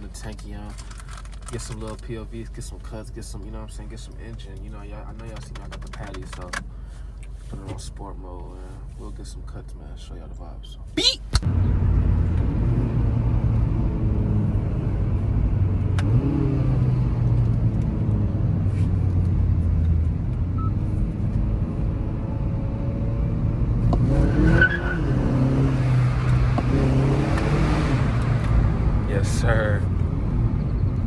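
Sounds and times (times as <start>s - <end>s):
car engine revving: 11.4s - 31.0s.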